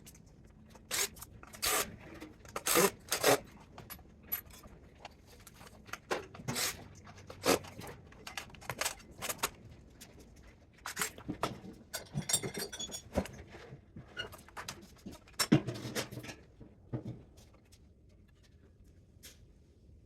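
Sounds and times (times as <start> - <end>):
clinks and knocks of hand tools: 0.0 - 9.5, 10.8 - 13.5.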